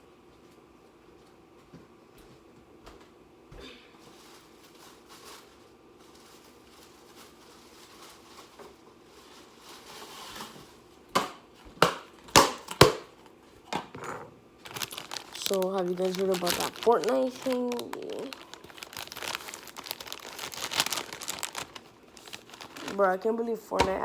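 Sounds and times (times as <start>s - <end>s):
faint rustling and shuffling: 0.3s - 11.8s, 14.6s - 24.0s
sharp crackles and knocks: 14.6s - 23.0s.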